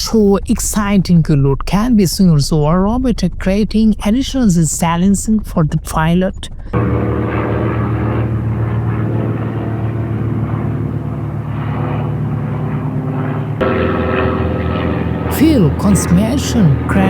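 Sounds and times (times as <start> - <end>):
aircraft engine drone: 6.5 - 17.0.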